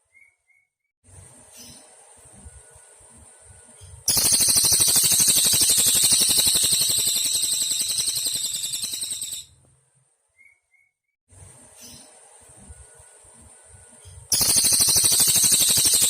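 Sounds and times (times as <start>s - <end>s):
bird singing a fast trill: 4.1s - 9.5s, 14.3s - 16.0s.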